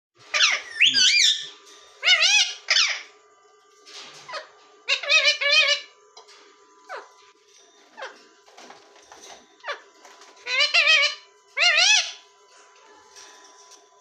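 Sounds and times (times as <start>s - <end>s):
parrots squawking: 0.2s - 3.2s, 4.0s - 6.0s, 6.9s - 7.2s, 7.8s - 8.3s, 9.1s - 12.3s.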